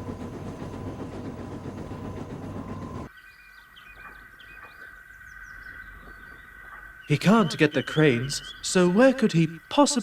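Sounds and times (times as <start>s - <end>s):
train running on track: 0.0s - 3.2s.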